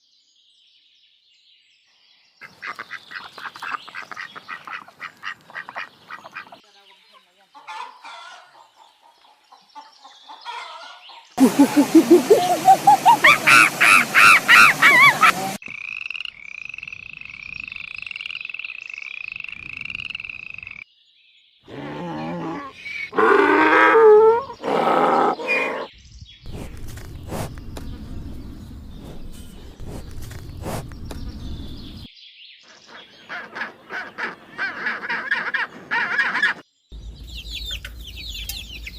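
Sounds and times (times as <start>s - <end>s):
pulsed animal calls rising in pitch: 11.4s - 15.6s.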